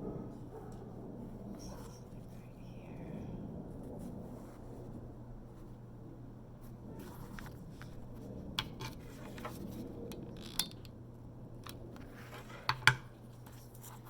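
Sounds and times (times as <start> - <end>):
faint steady hum: 0.0 - 14.0
faint rubbing: 6.6 - 10.0.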